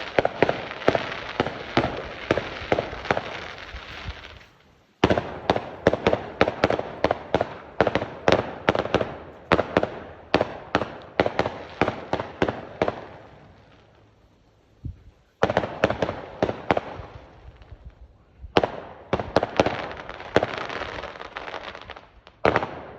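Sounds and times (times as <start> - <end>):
fireworks bangs and crackles: 0.0 - 22.9.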